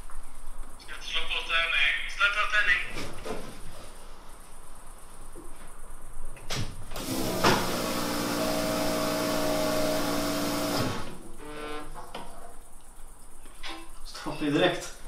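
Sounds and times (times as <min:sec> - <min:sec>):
car engine starting and running: 0:07.0 - 0:11.1.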